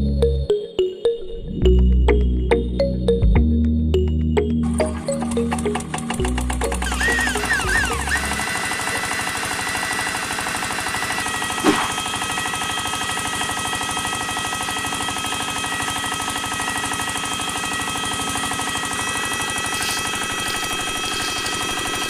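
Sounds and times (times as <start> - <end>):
small electric motor whining: 5.6 - 22.0.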